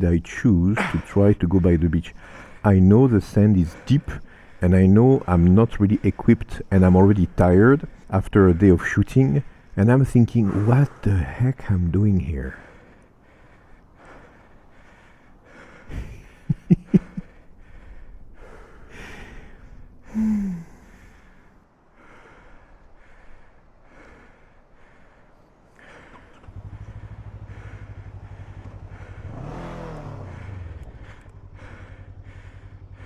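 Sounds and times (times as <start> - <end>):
heavy breathing and panting: 0.0 - 33.0
motorcycle engine idling: 26.1 - 33.0.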